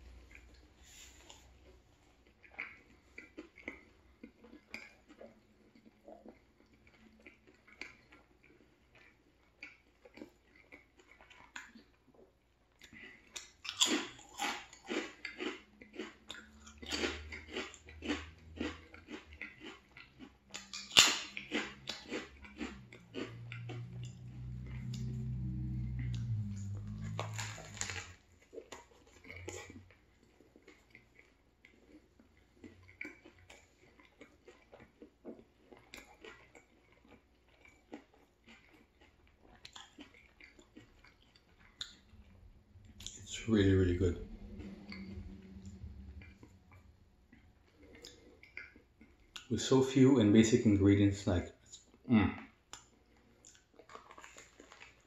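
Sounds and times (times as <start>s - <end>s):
chewing sandwich: 0.0s - 55.0s
crunching chips: 0.1s - 49.8s, 51.2s - 55.0s
low hum: 22.4s - 28.3s, 41.6s - 49.3s.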